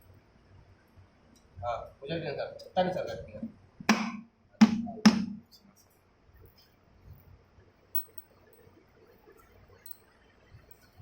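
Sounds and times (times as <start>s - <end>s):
metal parts clinking: 7.9s - 8.3s.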